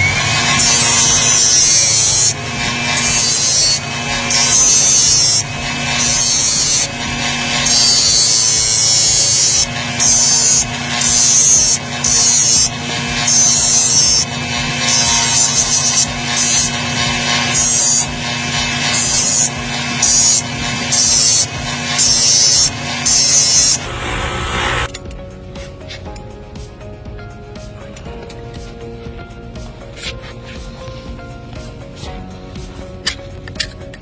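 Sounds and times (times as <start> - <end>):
rasp filing a hoof: 0.4 - 23.8.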